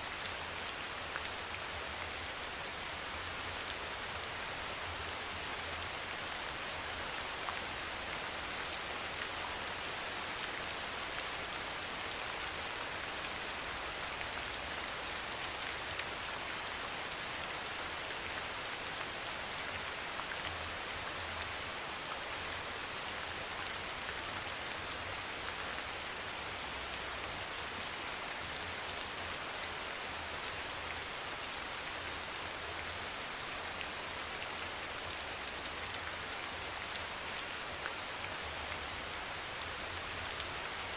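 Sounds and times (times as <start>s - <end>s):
soft rain falling: 0.0s - 40.9s.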